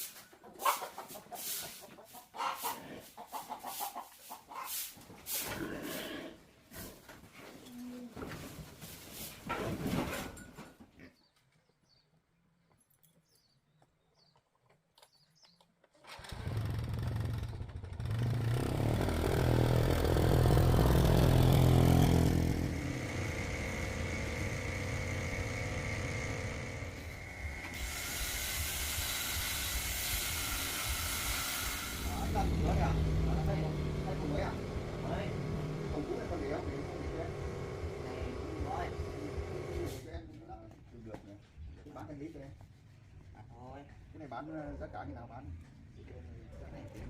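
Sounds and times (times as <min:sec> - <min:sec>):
vehicle engine starting and running: 0:16.0 - 0:29.0, 0:29.6 - 0:40.1.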